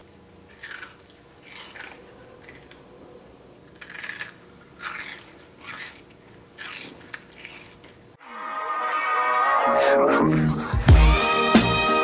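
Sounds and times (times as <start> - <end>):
person chewing crumbly snack: 0.4 - 8.2.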